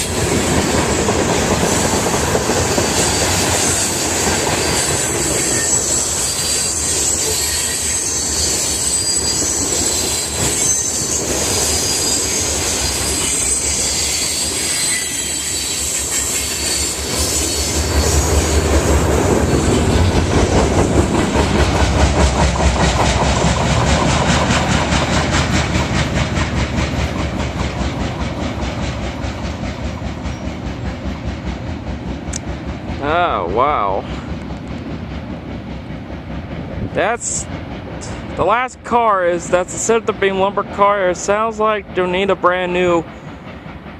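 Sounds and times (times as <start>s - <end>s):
high wheel squeal: 0.0s - 20.2s
train wheels clacking over rail joints: 0.0s - 33.5s, 39.8s - 43.9s
heavy train rumble: 0.0s - 43.9s.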